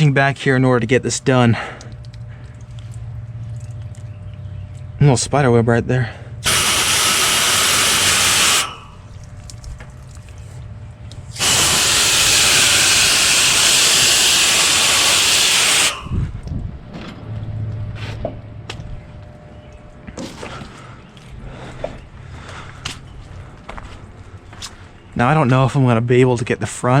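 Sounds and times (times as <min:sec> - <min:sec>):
garden hose spraying water: 0:06.4 - 0:10.6, 0:11.2 - 0:16.1.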